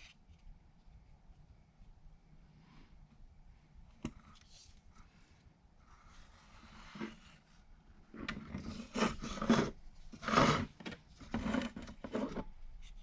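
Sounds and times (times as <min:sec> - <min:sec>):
adhesive scraping on plastic: 0:08.2 - 0:12.5.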